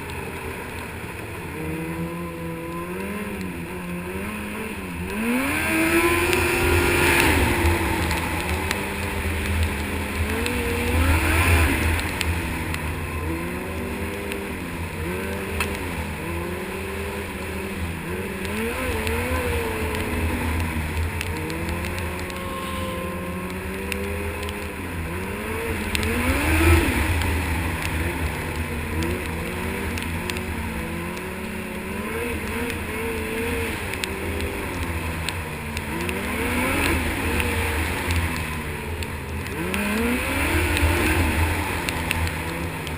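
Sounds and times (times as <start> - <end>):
snowmobile engine revving: 0.0 - 42.9.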